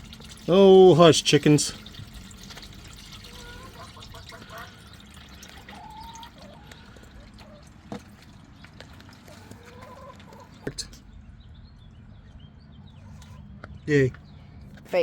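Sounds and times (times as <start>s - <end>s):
chickens clucking: 1.4s - 11.2s, 12.2s - 14.2s.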